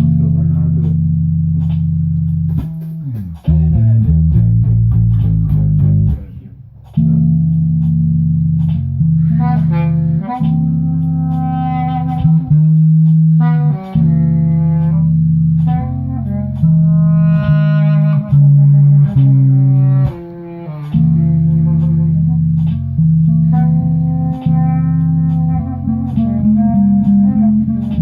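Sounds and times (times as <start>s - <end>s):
bass guitar notes: 0.0s - 28.0s
higher held melody line: 7.0s - 28.0s.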